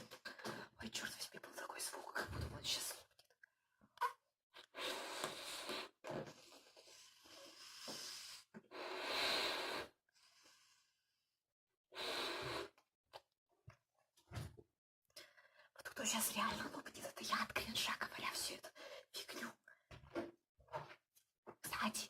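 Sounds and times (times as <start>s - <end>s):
quiet breathing: 4.6s - 11.2s, 15.2s - 16.8s, 17.8s - 19.6s
breaths blown into balloon: 6.9s - 10.6s, 12.0s - 12.8s.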